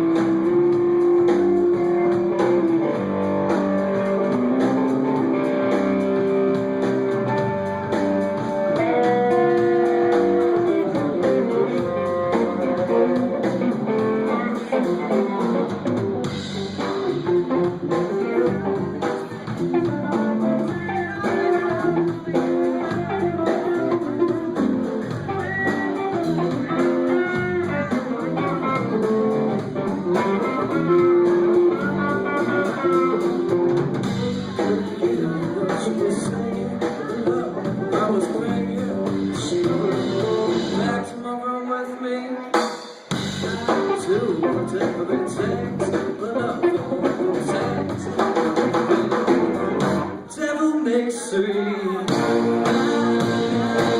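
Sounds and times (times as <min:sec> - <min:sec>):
lead guitar bending notes: 0:00.0 - 0:35.7, 0:52.1 - 0:53.9
live band playing: 0:00.0 - 0:53.9.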